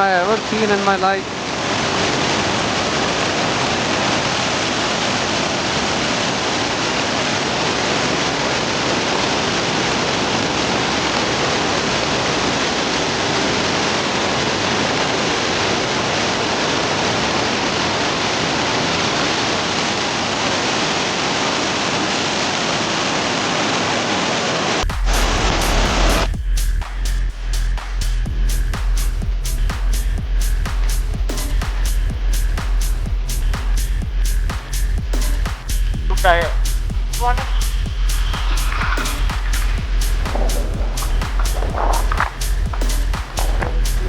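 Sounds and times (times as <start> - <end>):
river rushing: 0.0 - 26.4, 28.9 - 44.0
electronic music with heavy bass: 24.8 - 44.0.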